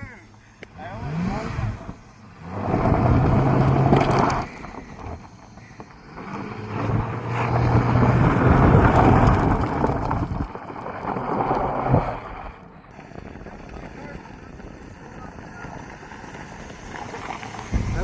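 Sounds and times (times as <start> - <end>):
car engine revving hard: 0.8 - 4.5, 6.0 - 9.7.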